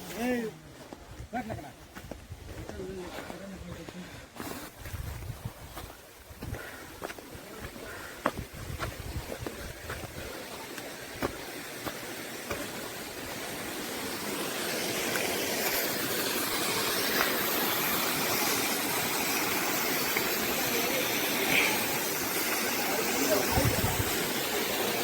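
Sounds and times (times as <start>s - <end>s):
footsteps: 0.0s - 13.2s
small waterfall rushing: 5.8s - 25.0s.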